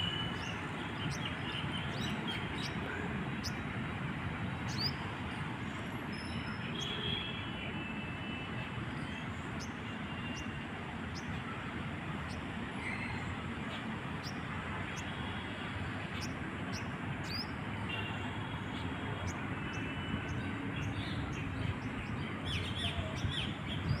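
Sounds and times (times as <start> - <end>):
small birds chirping: 0.0 - 3.8, 4.4 - 5.4, 9.0 - 24.0
steady background noise: 0.0 - 6.6.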